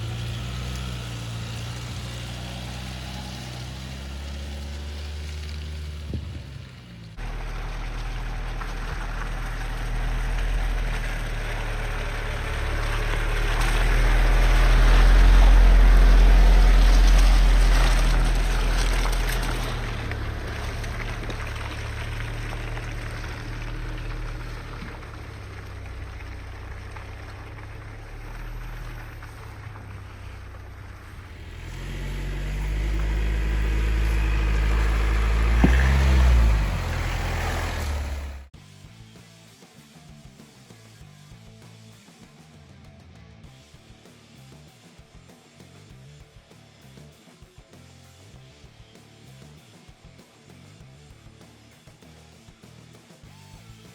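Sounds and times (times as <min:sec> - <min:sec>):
pickup truck engine rumbling: 0:00.0 - 0:38.6.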